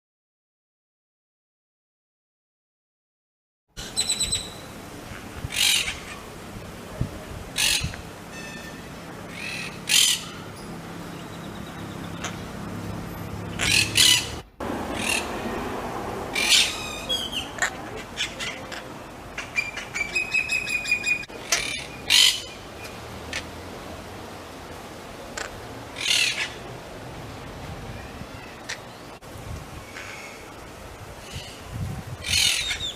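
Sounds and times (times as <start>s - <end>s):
parrots squawking and chirping: 3.8s - 6.3s, 7.6s - 12.5s, 13.4s - 15.5s, 16.3s - 23.5s, 25.4s - 26.7s, 27.9s - 29.0s, 32.2s - 32.9s.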